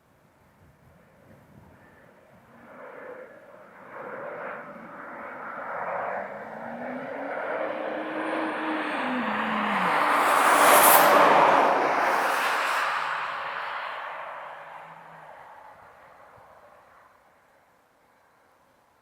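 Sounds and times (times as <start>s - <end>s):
jet aircraft flying past: 1.8s - 17.0s.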